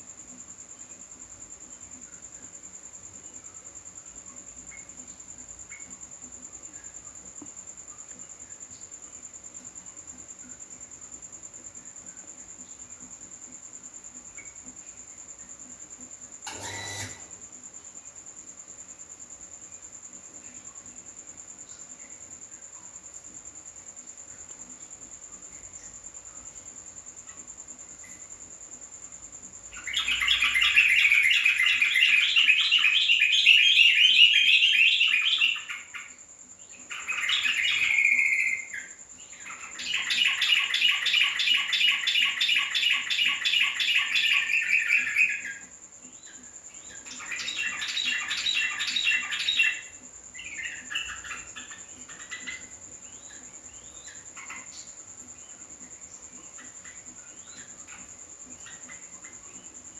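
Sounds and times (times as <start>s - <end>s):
bird chattering song: 29.8s - 36.2s, 36.8s - 45.7s, 46.9s - 54.9s.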